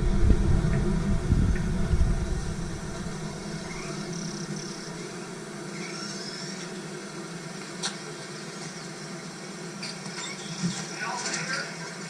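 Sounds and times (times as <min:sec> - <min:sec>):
car running hum: 0:00.0 - 0:05.5.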